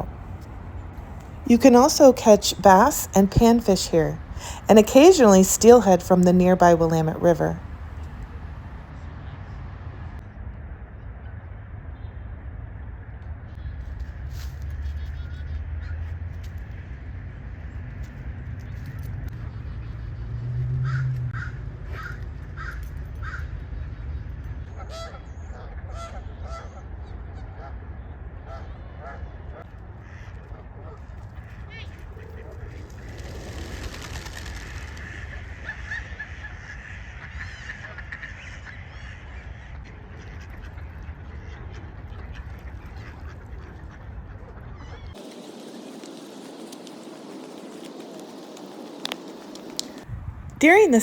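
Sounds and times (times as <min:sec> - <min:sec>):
small birds chirping: 0:45.1 - 0:50.1.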